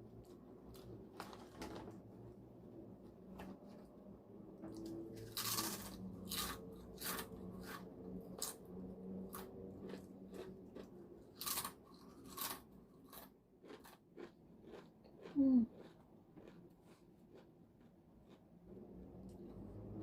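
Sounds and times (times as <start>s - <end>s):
chips crunched and chewed: 5.2s - 8.6s, 9.2s - 18.4s.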